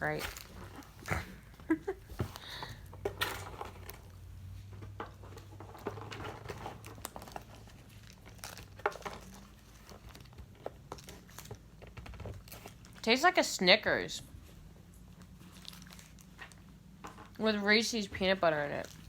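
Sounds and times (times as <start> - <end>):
plastic wrapper crinkling: 6.6 - 13.0, 15.2 - 16.7.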